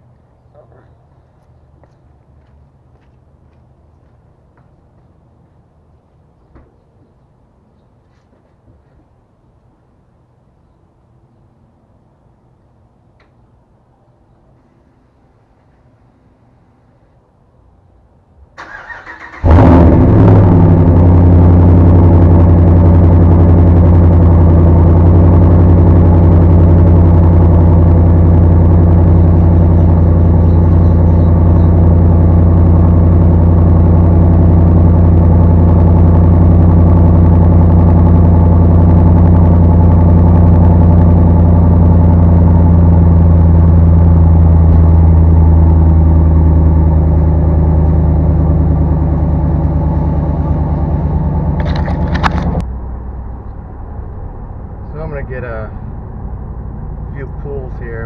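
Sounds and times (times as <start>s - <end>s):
truck engine starting and idling: 18.4s - 58.0s.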